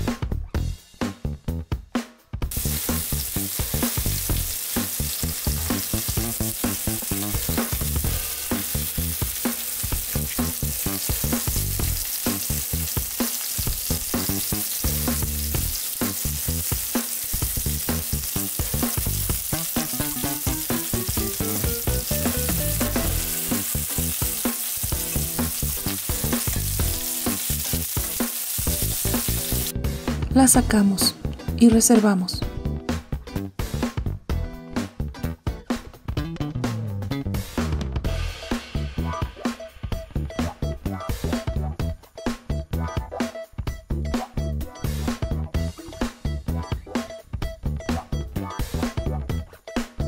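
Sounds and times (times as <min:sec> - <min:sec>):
meatballs sizzling in a frying pan: 0:02.5 - 0:29.8.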